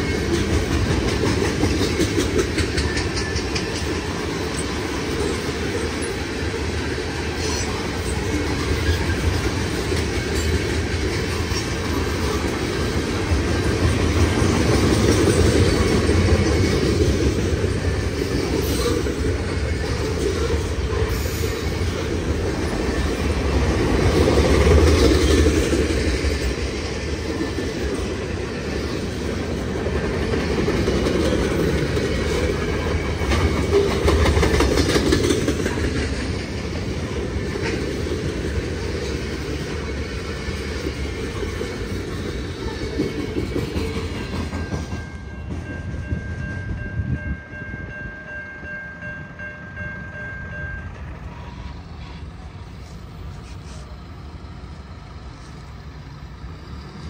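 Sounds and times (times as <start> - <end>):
freight train wheels clacking: 0.0 - 57.0.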